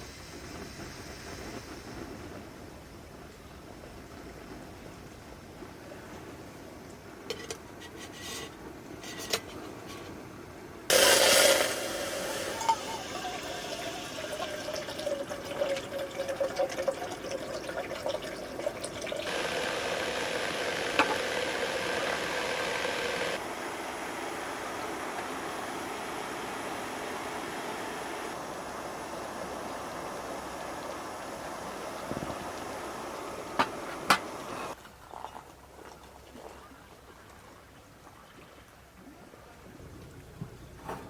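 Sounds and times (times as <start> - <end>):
gas burner hissing: 0.0 - 2.8, 10.9 - 15.6, 19.2 - 34.8.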